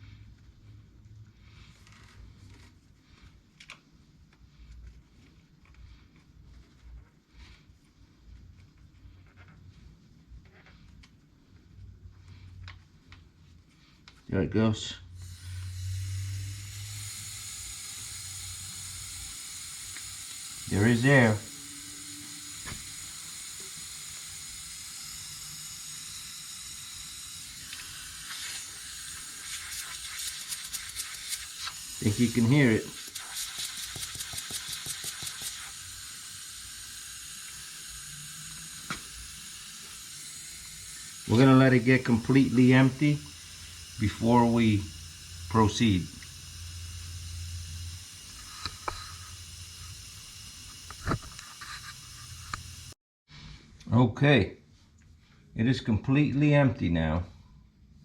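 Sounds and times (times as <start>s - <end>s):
air hissing from tire valve: 15.2s - 53.0s.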